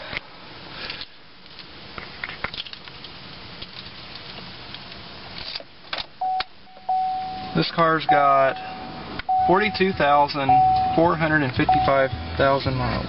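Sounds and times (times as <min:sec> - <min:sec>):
car engine starting and idling: 0:06.0 - 0:13.0.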